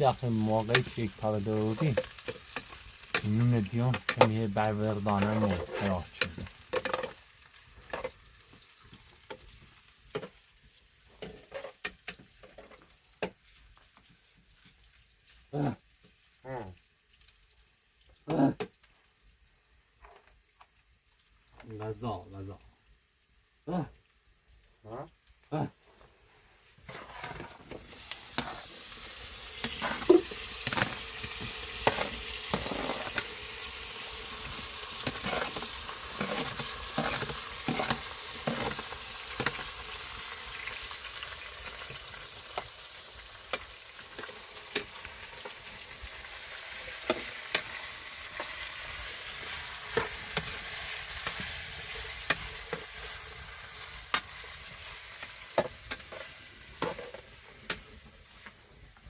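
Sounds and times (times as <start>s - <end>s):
food sizzling in a frying pan: 0.0s - 59.0s
utensil clicking against pan: 29.6s - 33.3s, 34.4s - 39.8s.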